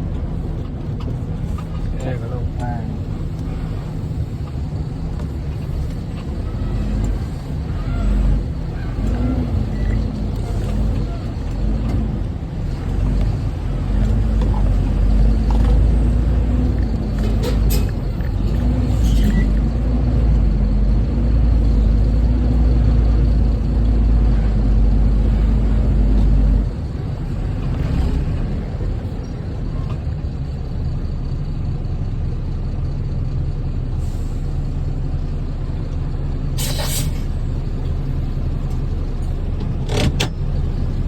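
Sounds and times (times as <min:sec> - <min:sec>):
diesel truck engine rumbling: 0:00.0 - 0:41.0
air brake hisses: 0:36.6 - 0:37.4.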